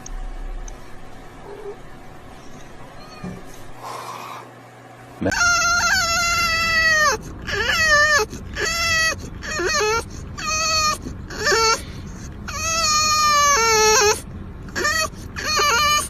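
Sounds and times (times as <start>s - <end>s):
cat yowling: 2.9s - 3.6s, 5.2s - 11.8s, 12.5s - 16.0s.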